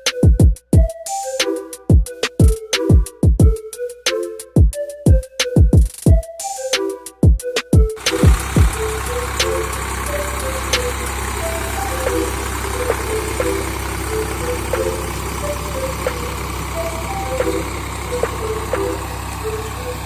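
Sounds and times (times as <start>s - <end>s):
electronic tune: 7.9s - 20.0s
engine idling: 8.0s - 20.0s.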